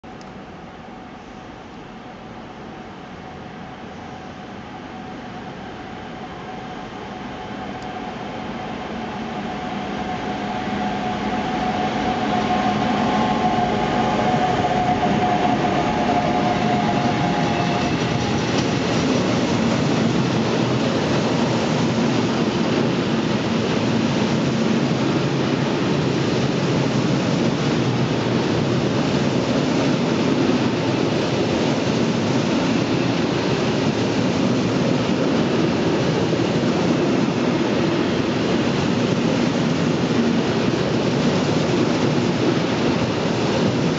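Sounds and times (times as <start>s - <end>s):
train wheels rumbling and clattering: 10.0s - 43.9s.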